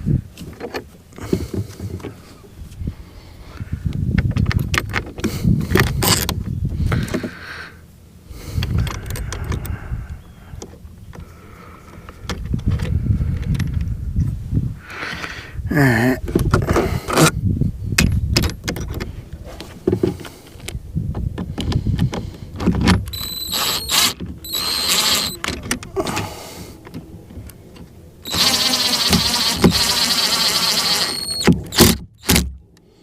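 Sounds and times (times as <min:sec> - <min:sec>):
electronic beeps: 0:23.1 - 0:25.4.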